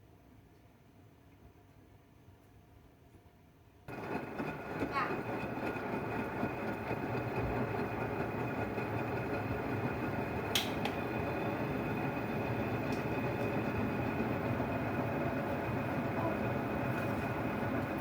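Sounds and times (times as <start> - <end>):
washing machine running: 3.9 - 18.0.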